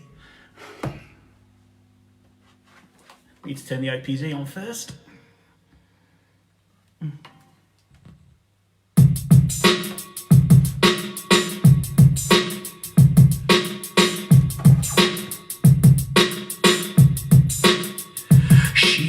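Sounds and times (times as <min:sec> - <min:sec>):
kick drum hits: 0:14.3 - 0:16.0.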